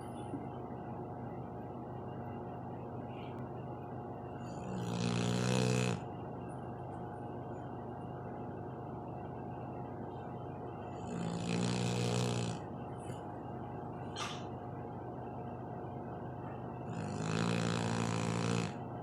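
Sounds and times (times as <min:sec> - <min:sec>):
dog snoring: 0:04.4 - 0:06.1, 0:10.8 - 0:12.7, 0:16.8 - 0:18.8.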